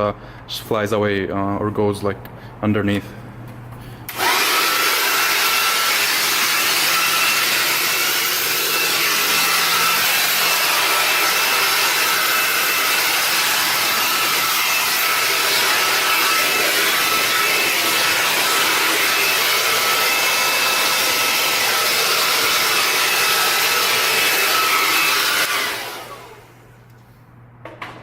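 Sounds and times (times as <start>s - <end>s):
air blower rushing with motor whine: 3.5s - 26.9s.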